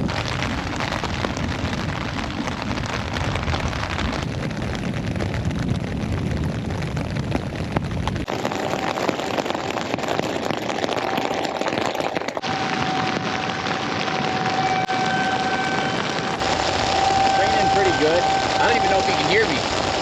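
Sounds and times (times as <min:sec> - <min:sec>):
deep rumble: 0:00.0 - 0:20.0
heavy rain pouring: 0:00.0 - 0:20.0.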